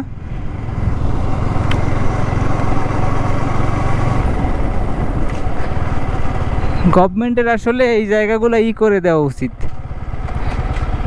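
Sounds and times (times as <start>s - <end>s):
motorcycle engine running: 0.0s - 11.0s
road noise: 0.0s - 11.0s
wind noise: 3.9s - 7.0s.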